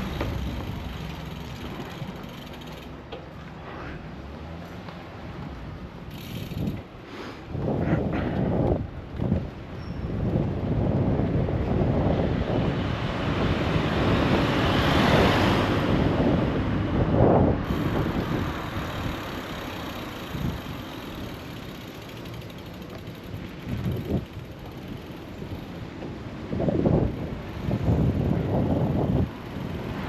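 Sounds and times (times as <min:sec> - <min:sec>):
city traffic noise: 0:00.0 - 0:30.0
wind rushing over microphone: 0:05.4 - 0:21.4, 0:23.2 - 0:30.0.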